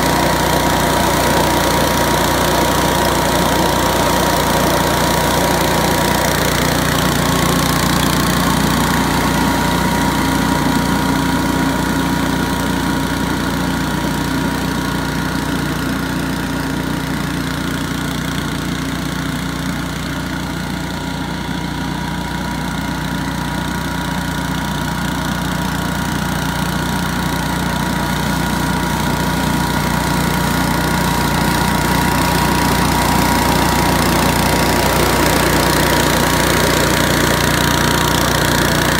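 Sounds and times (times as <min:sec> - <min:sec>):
high impeller whine: 0:00.0 - 0:14.9, 0:28.6 - 0:38.9
leaf blower engine running: 0:00.0 - 0:38.9.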